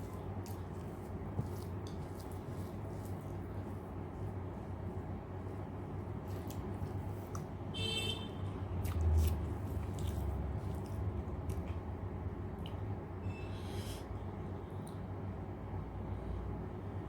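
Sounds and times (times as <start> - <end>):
steady low hum: 0.0 - 17.0
wet chewing and mouth clicks: 8.8 - 11.9.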